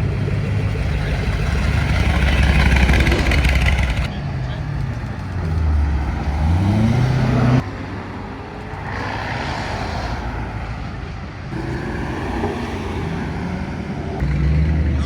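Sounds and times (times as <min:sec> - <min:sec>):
car engine accelerating: 0:00.0 - 0:04.1
traffic noise: 0:00.0 - 0:15.0.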